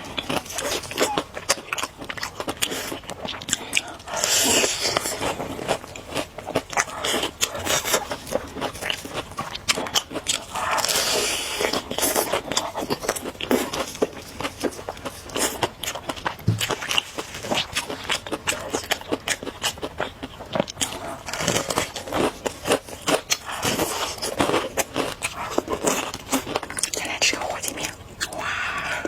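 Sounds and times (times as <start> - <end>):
crunchy food being eaten: 0.0 - 29.0.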